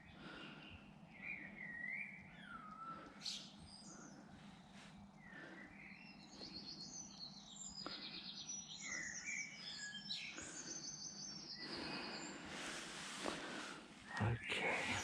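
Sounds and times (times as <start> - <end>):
faint steady hum: 0.0 - 15.0
bird singing trills and chirps: 0.7 - 4.4, 5.2 - 12.4, 14.0 - 15.0.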